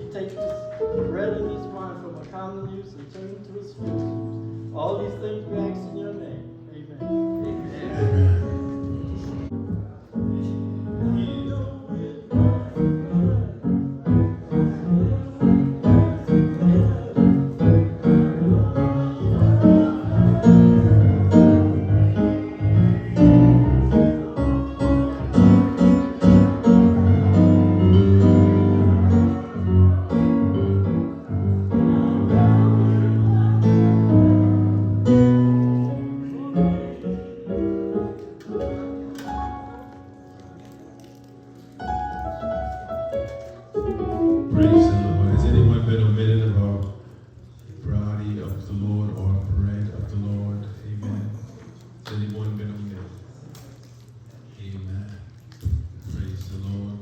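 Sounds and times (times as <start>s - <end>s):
keyboard music with bass line: 12.4s - 35.8s.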